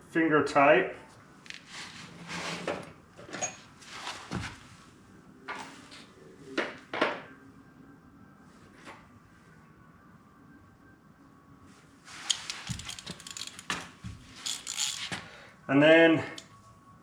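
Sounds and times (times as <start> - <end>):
light metal clicks and scrapes: 12.2 - 13.8, 14.4 - 15.2.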